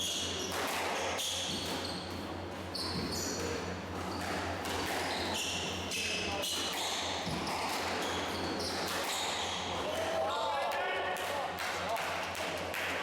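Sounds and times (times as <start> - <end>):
shoes squeaking on court floor: 0.0 - 9.8.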